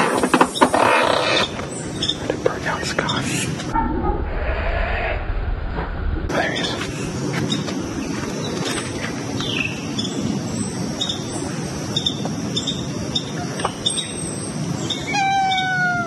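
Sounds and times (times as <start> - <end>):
noisy background: 1.6 - 15.3.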